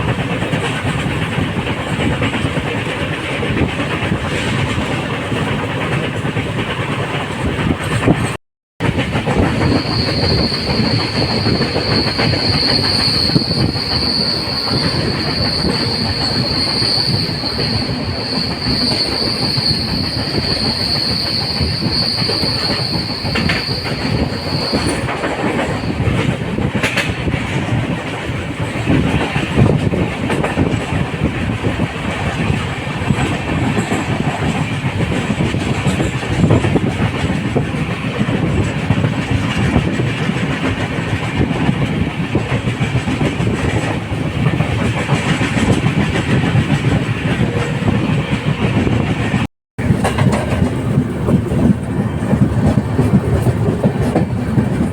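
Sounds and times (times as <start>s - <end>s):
train wheels rumbling on rails: 0.0s - 54.9s
high wheel squeal: 9.4s - 26.2s.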